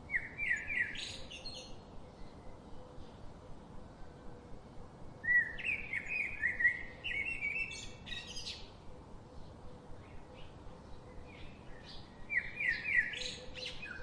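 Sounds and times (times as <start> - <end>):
songbird chirping: 0.0 - 14.0
steady background hiss: 0.0 - 14.0.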